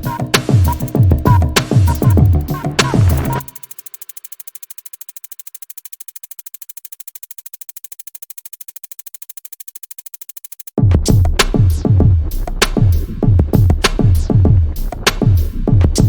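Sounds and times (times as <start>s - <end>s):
music: 0.0s - 4.4s, 10.8s - 16.0s
rapid high-pitched ticking: 0.0s - 10.8s.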